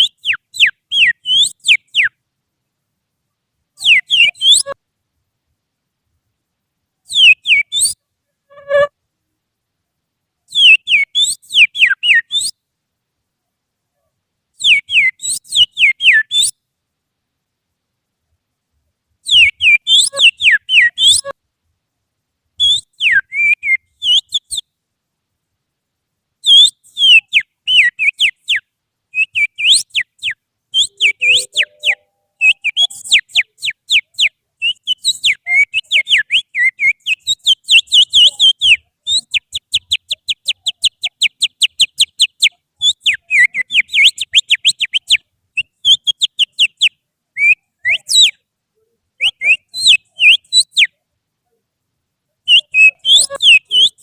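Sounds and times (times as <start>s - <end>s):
finger whistling birdsong imitation: 0.0s - 2.2s, 3.8s - 4.8s, 7.1s - 8.9s, 10.5s - 12.6s, 14.6s - 16.6s, 19.2s - 21.4s, 22.6s - 24.7s, 26.4s - 48.4s, 49.2s - 51.0s, 52.5s - 54.0s.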